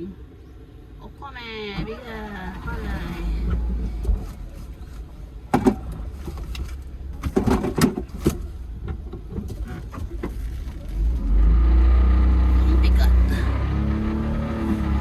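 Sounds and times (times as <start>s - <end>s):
vehicle engine running: 0.1s - 15.0s
sharp knocks and clunks: 5.5s - 6.6s, 7.2s - 10.4s.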